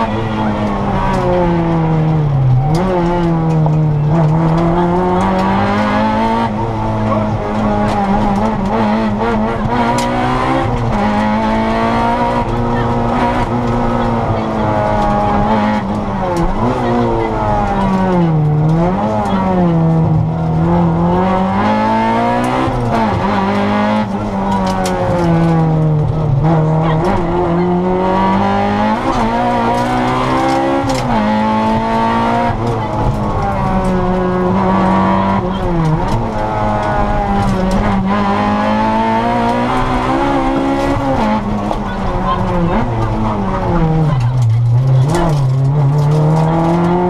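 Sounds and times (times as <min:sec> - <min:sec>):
car engine revving: 0:00.0 - 0:47.0.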